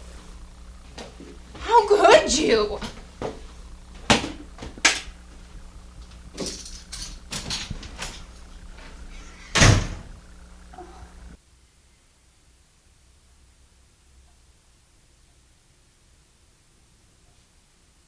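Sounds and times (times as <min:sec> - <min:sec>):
sharp knocks and clicks: 0:02.9 - 0:11.3
heavy thump: 0:07.8 - 0:11.4.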